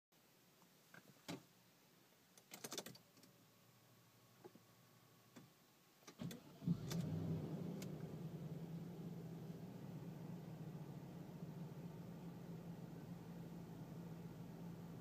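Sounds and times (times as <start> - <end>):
car engine starting and idling: 6.1 - 15.0.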